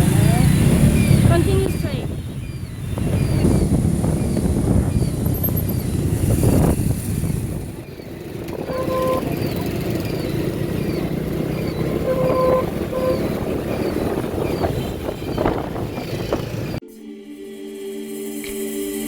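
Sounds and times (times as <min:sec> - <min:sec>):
motorbike engines: 0:00.0 - 0:16.8
street traffic: 0:00.0 - 0:16.8
short horn beeps: 0:08.6 - 0:09.7, 0:12.0 - 0:13.4.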